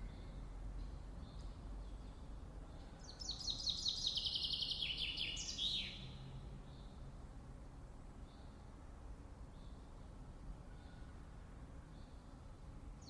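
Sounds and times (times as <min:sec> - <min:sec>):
songbird singing: 0:00.0 - 0:07.1
faint outdoor background noise: 0:00.0 - 0:13.0.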